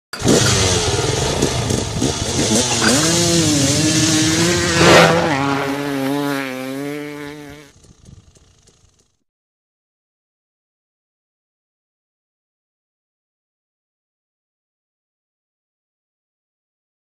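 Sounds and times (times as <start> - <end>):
dirt bike engine revving: 0.1 - 9.1
loud whoosh: 0.8 - 6.9.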